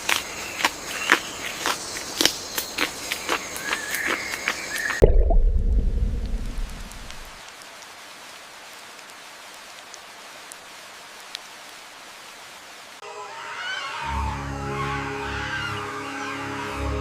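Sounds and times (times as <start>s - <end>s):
sudden deep rumble: 5.0s - 7.4s.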